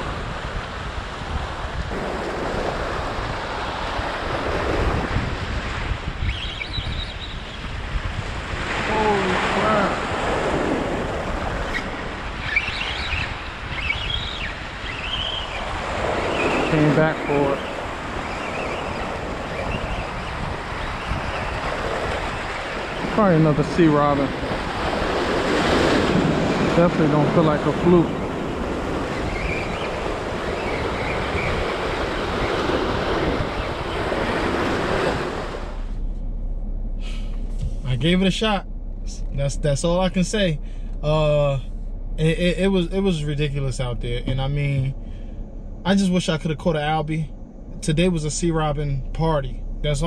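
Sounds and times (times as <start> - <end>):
surf: 0.0 - 36.1
wind buffeting microphone: 0.0 - 39.4.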